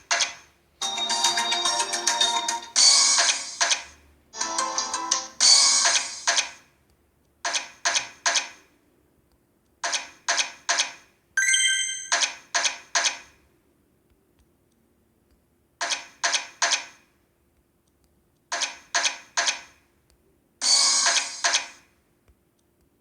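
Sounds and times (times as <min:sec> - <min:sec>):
bright chiming tone: 0:00.8 - 0:02.8, 0:11.4 - 0:12.2
slot machine clicks: 0:00.8 - 0:03.7, 0:11.4 - 0:12.5.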